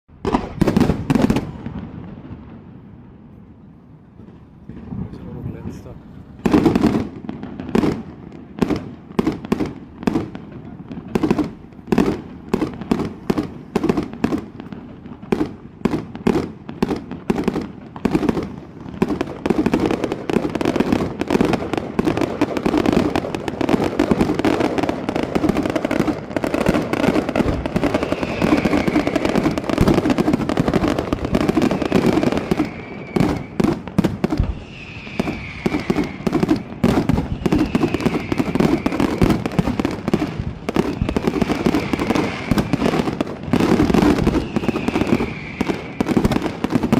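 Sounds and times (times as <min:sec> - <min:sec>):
fireworks bangs and crackles: 0:00.1 - 0:46.9
falling firework whistles: 0:15.3 - 0:46.9.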